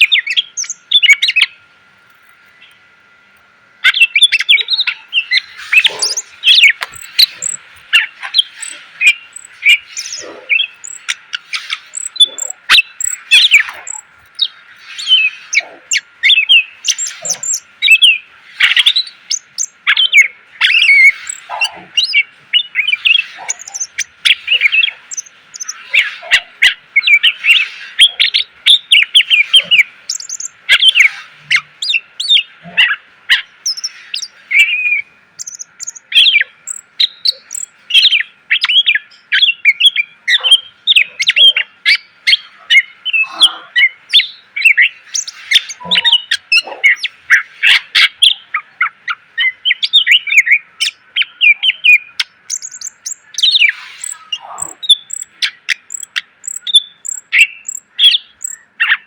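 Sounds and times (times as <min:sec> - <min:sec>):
bird singing rapid chirps and trills: 0:00.0 - 0:01.7, 0:03.8 - 0:59.0.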